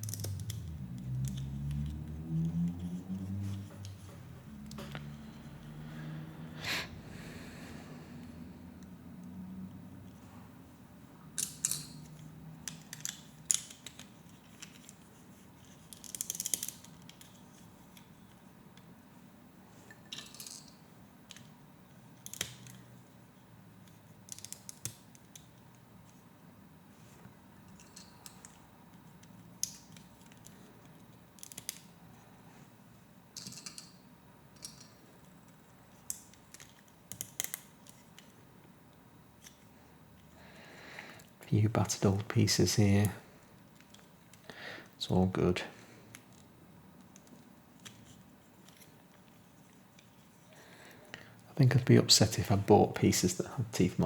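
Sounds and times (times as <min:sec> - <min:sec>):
plastic pieces clicking: 0:15.8 - 0:17.6, 0:29.2 - 0:31.9.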